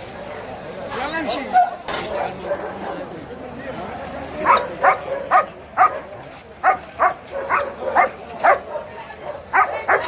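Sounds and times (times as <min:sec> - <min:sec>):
background hubbub: 0:00.0 - 0:10.0
dog barking: 0:04.4 - 0:06.0, 0:06.6 - 0:10.0.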